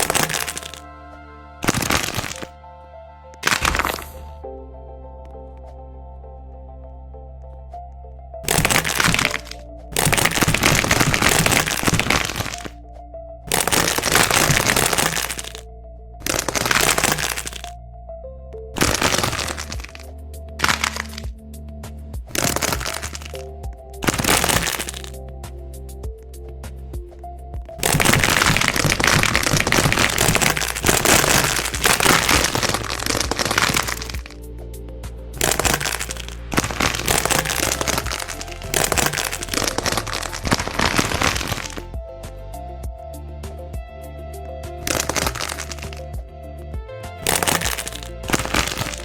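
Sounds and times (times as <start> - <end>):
dense crackling bursts: 0.0 - 0.8, 1.6 - 2.5, 3.4 - 4.2, 8.4 - 12.8, 13.5 - 15.6, 16.2 - 17.7, 18.8 - 20.0, 20.6 - 21.3, 22.3 - 23.4, 24.0 - 25.2, 27.8 - 34.4, 35.4 - 41.9, 44.8 - 46.0, 47.2 - 49.0
soft background music: 0.0 - 49.0
dense rapid crackling: 27.8 - 34.4.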